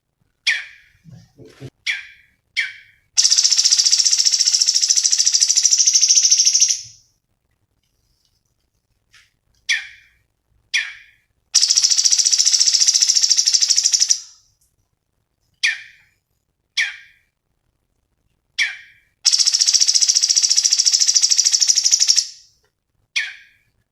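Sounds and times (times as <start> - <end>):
fast high bird trill: 1.9 - 6.9, 11.6 - 14.3, 18.6 - 22.4.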